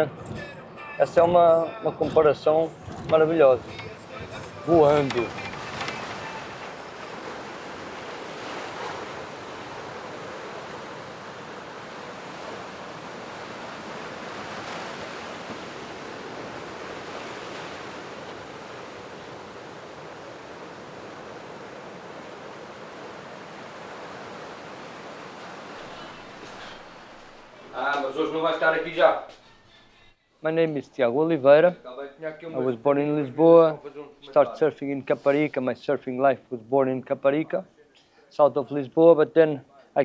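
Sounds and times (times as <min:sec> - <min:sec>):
ocean waves breaking: 0:00.0 - 0:28.8.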